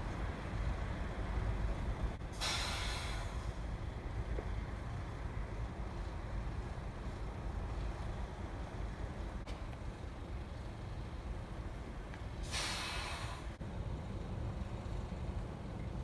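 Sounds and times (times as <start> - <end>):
short sharp hiss: 2.4 - 3.5, 12.4 - 13.5.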